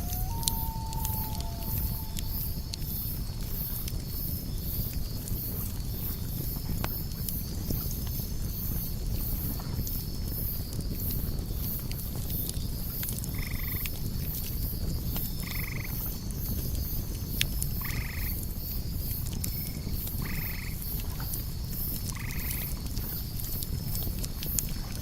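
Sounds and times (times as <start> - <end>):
frog croaking: 0.0 - 2.8
burning wood crackling: 0.0 - 5.5
crickets chirping: 0.0 - 6.7.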